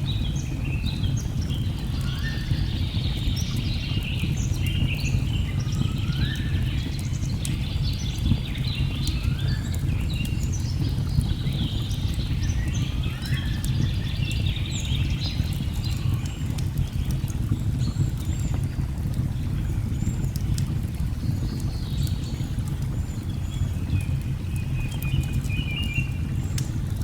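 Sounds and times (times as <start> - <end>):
wood fire crackling: 13.6 - 27.0.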